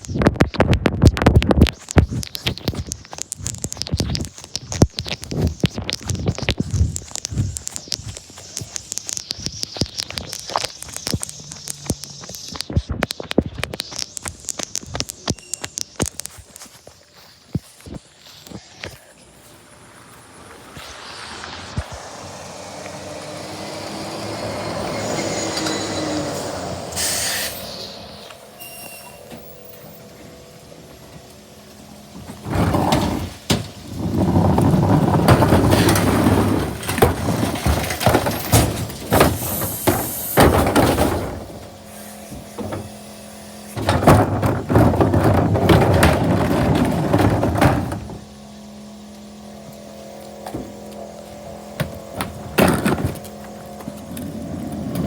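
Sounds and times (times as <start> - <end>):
truck engine hum: 0.0 - 55.0
air brake hiss: 24.9 - 29.3
bin banging and clattering: 32.0 - 43.0, 43.8 - 48.4, 51.8 - 53.9.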